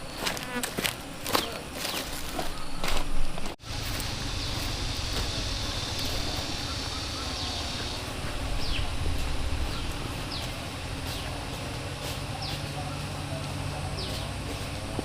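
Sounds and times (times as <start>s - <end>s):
high insect buzz: 0.0s - 14.8s
low rumble: 3.6s - 12.0s
falling bird calls: 3.6s - 14.8s.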